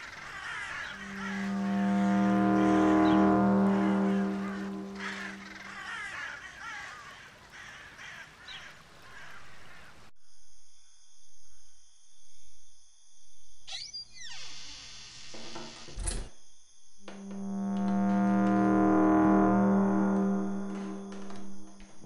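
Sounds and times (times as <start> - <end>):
crows cawing: 0.0 - 10.1
pulsing low drone: 0.5 - 5.5, 17.1 - 22.0.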